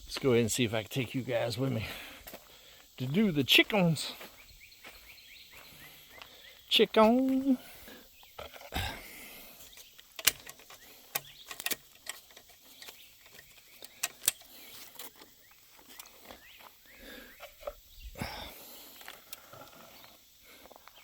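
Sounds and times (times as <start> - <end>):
faint outdoor background noise: 0.0 - 21.0
irregular footsteps: 1.8 - 7.6, 8.2 - 21.0
things being handled clicking: 9.7 - 16.4.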